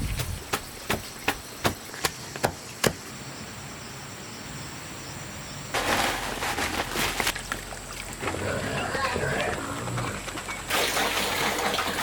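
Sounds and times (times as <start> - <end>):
sharp evenly spaced knocks: 0.4 - 3.0.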